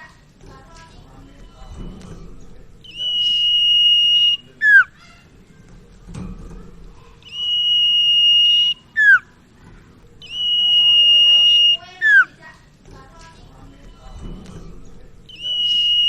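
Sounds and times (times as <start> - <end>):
bird singing high whistles: 2.8 - 5.0, 7.2 - 9.3, 10.2 - 12.4, 15.3 - 16.0.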